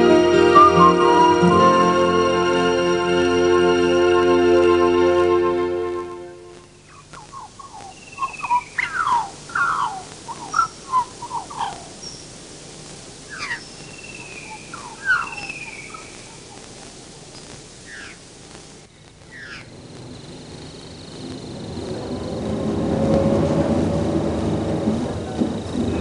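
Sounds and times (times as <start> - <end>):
birds calling with falling notes: 0.0 - 1.9, 6.8 - 12.4, 13.2 - 18.2, 19.2 - 22.9
faint steady hiss: 0.0 - 26.0.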